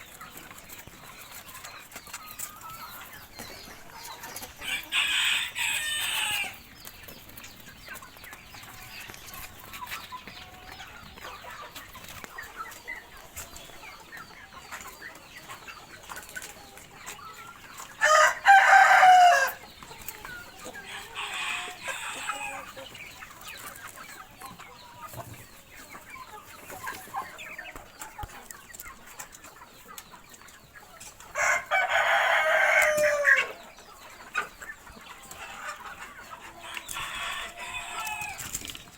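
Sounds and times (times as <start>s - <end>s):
chickens clucking: 0.0s - 38.9s
roosters crowing: 4.5s - 6.7s, 17.9s - 22.9s, 31.2s - 34.0s, 35.3s - 38.9s.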